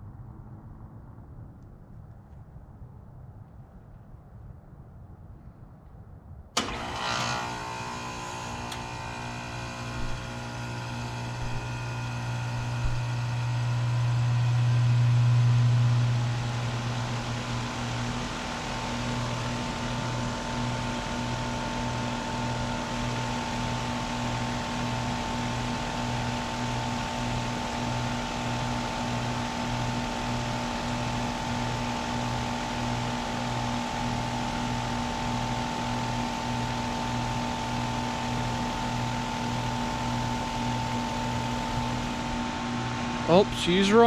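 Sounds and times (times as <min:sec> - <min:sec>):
heat pump compressor humming: 0:06.6 - 0:44.0.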